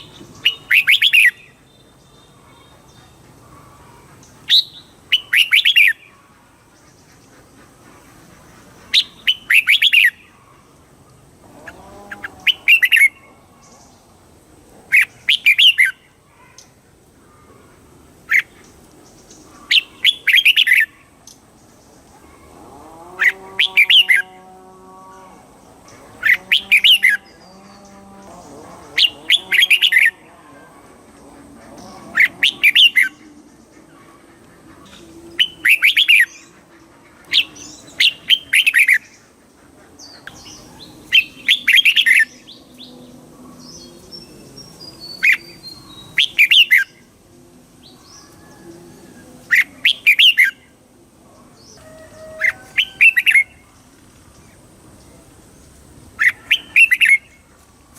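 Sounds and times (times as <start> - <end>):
faint lower bird calls: 14.9 - 47.2, 56.2 - 57.9.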